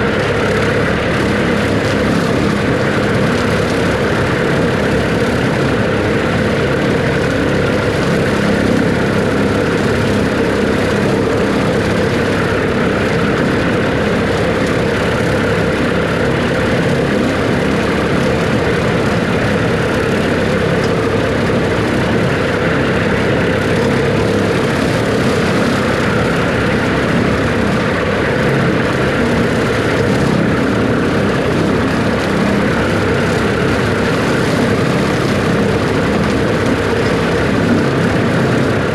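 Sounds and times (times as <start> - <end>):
tractor diesel engine drone: 0.0 - 38.9.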